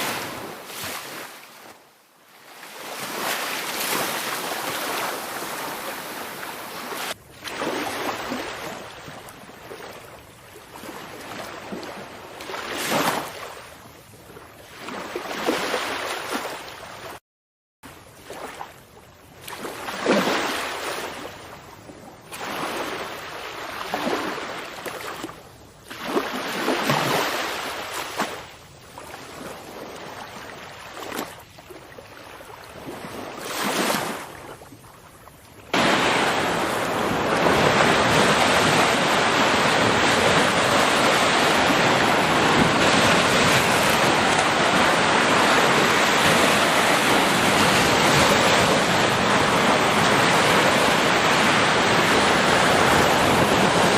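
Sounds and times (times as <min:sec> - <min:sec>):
steady rush of water: 0:00.0 - 0:01.5, 0:02.4 - 0:09.6, 0:35.6 - 0:53.9
water surging and splashing: 0:00.0 - 0:01.7, 0:02.3 - 0:13.6, 0:22.3 - 0:53.9.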